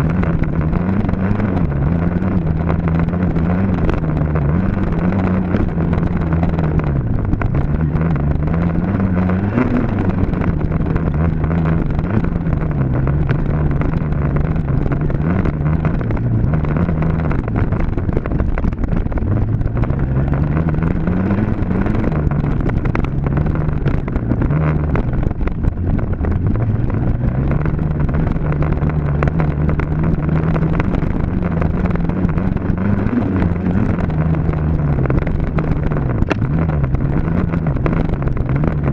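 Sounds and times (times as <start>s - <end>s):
dirt bike engine revving: 0.0s - 17.8s.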